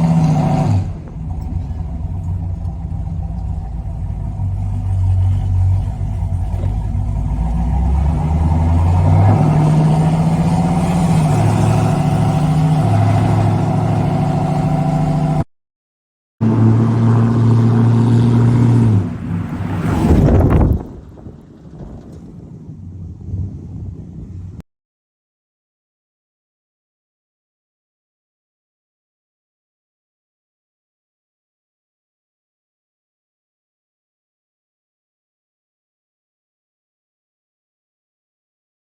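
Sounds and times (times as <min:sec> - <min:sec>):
pickup engine accelerating: 0:00.0 - 0:15.5, 0:16.4 - 0:23.7.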